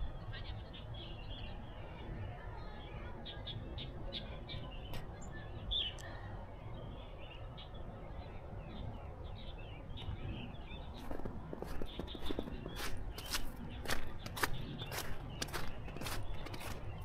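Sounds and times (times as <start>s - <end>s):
small birds chirping: 0.0s - 17.0s
footsteps: 11.0s - 17.0s.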